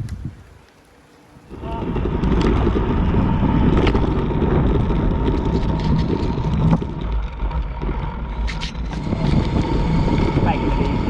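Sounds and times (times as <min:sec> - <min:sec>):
wind buffeting microphone: 0:00.0 - 0:00.6, 0:01.3 - 0:11.0
tyres rumbling on road: 0:01.5 - 0:11.0.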